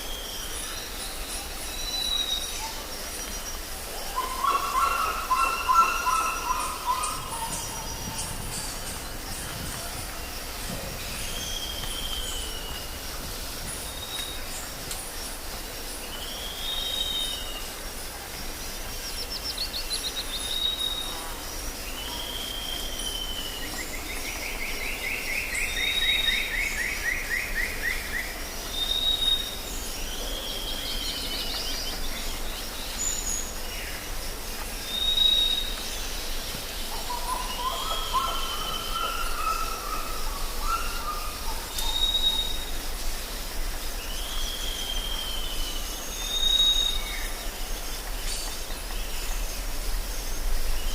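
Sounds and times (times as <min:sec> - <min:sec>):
background hiss: 0:00.0 - 0:50.9
low bird warbling: 0:04.1 - 0:12.9.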